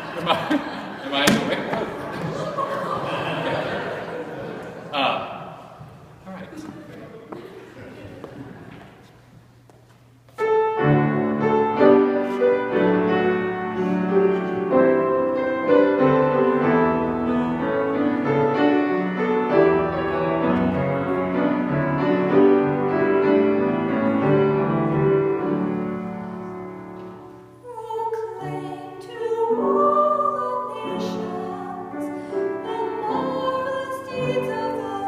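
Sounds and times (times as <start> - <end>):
piano playing chords: 10.4 - 27.7.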